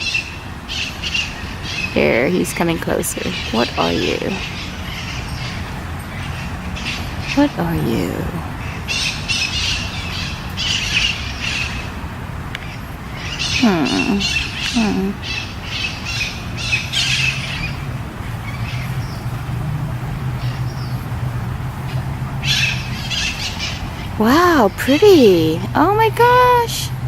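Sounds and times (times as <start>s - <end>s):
birds squawking and chirping: 0.0s - 27.0s
lower sliding bird calls: 3.2s - 21.1s.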